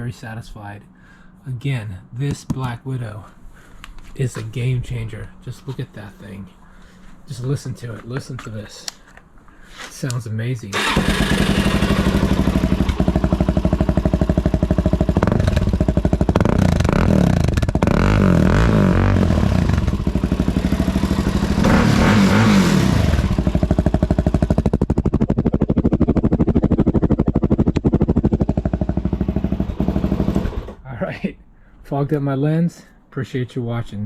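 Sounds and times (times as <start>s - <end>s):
motorcycle engine revving and idling: 10.8s - 30.8s.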